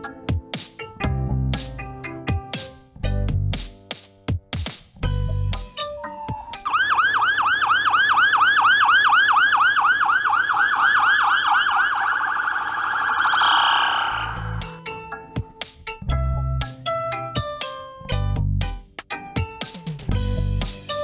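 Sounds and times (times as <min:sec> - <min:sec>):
yelp siren wailing: 0:05.8 - 0:14.6.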